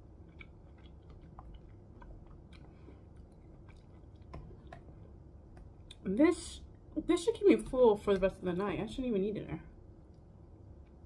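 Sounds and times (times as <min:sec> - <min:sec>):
faint chewing of soft fruit: 0:00.0 - 0:08.3.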